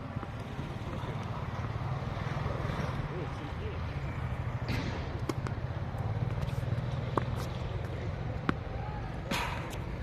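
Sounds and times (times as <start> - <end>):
tennis ball hitting racket: 4.7 - 10.0.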